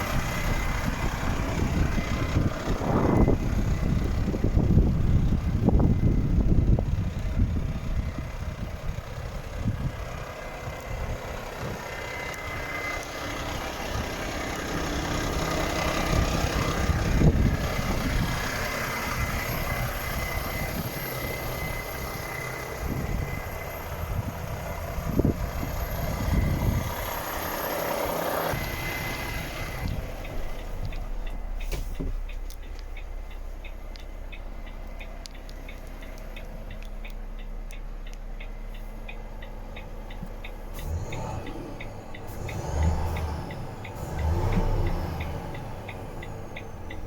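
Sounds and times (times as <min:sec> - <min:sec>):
truck diesel engine rumbling: 0:00.0 - 0:47.0
sharp clicks: 0:28.5 - 0:47.0
low thumps: 0:28.6 - 0:40.8.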